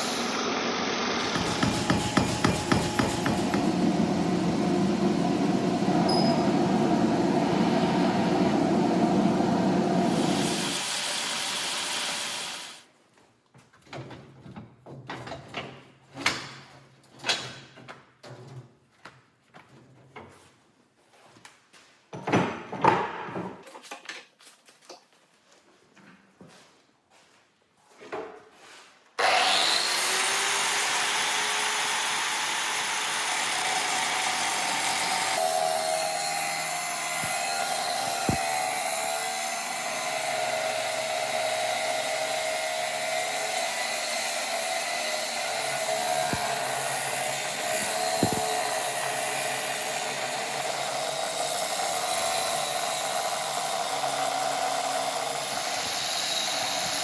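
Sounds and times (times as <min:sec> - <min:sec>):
power tool cutting steel: 0:00.0 - 0:12.8, 0:29.2 - 0:57.0
knocks: 0:01.3 - 0:03.7.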